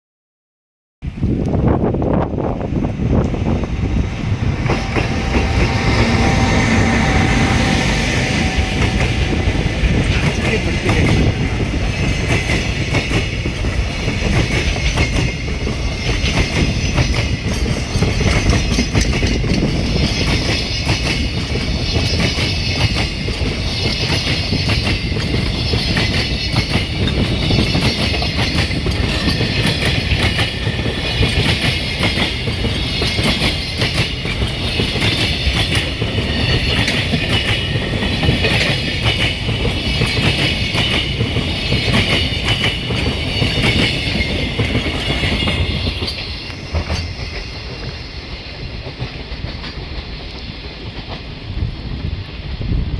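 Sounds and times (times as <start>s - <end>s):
freight train rolling past: 1.0s - 52.9s
wheels clicking over rail joints: 3.2s - 51.5s.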